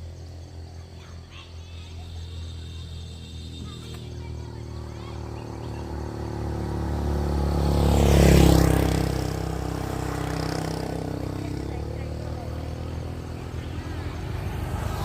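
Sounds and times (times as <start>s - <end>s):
vehicle driving past: 3.2s - 15.0s.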